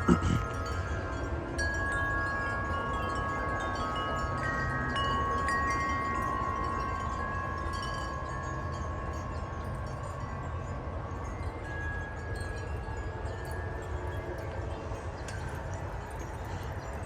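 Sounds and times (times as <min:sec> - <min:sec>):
wind chimes ringing: 0:00.0 - 0:10.3.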